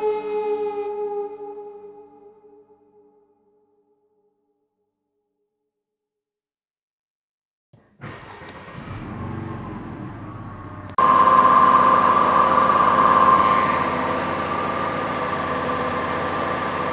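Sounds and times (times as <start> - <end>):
car engine idling: 8.2 - 16.9.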